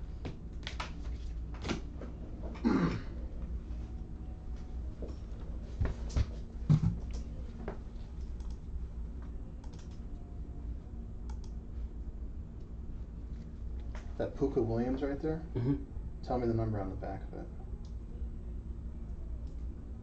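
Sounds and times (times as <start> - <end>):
computer keyboard typing: 9.6 - 10.0.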